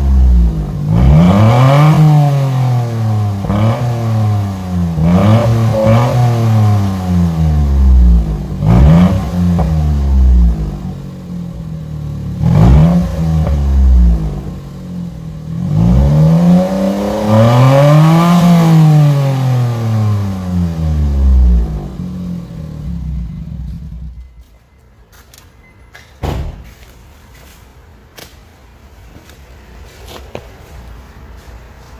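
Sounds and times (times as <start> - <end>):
loud truck engine revving: 0.0 - 10.9, 12.4 - 14.6, 15.5 - 23.7.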